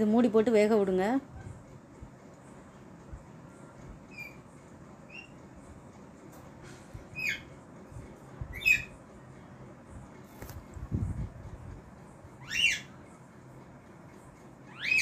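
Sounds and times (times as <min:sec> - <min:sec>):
bird calling: 0:12.4 - 0:13.0, 0:14.7 - 0:15.0.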